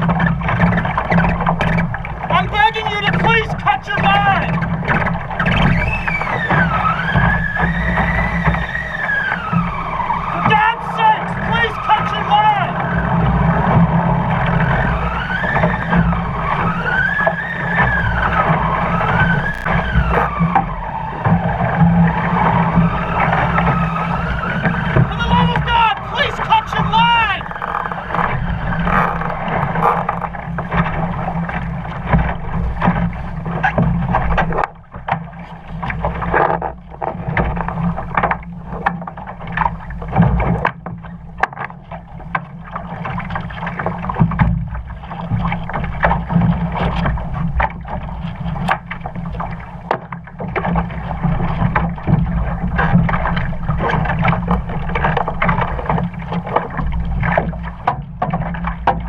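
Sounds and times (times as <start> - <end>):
boat knocks and rattles: 0.0 - 59.0
water noise: 0.0 - 59.0.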